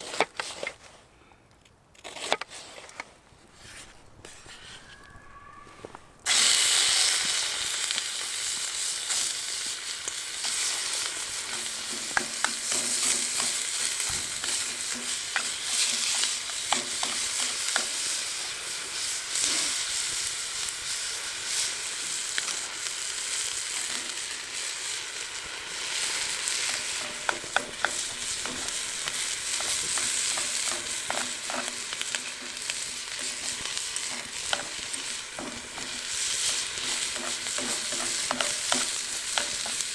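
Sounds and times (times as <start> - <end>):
food sizzling in oil: 4.2 - 39.9
sharp pops and clicks: 25.9 - 39.9.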